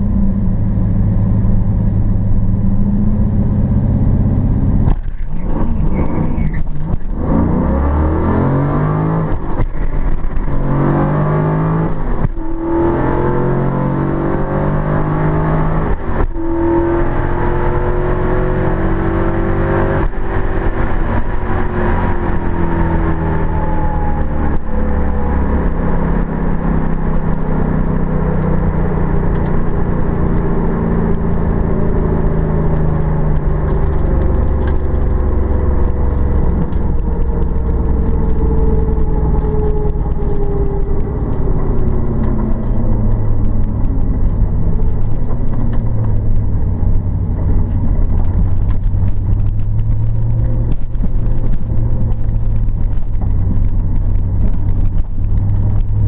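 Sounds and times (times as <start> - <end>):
car engine at full throttle: 0.0 - 56.0.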